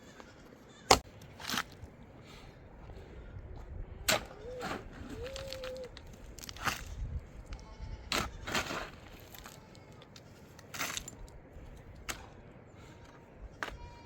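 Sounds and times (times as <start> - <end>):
faint livestock bleating: 7.5 - 8.5, 12.8 - 14.0.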